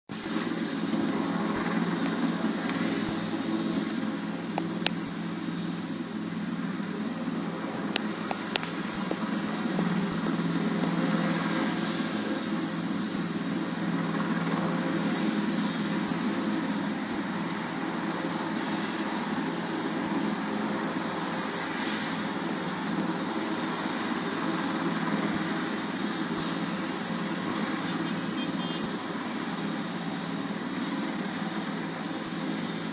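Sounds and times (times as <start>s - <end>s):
helicopter rotor and engine: 0.1s - 32.9s
sharp clicks: 7.9s - 11.9s.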